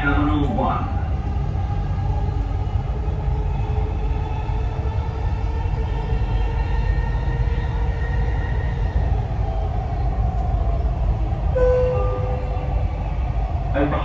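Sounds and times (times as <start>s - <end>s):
train rumbling: 0.0s - 14.0s
clear steady tone: 11.6s - 13.5s.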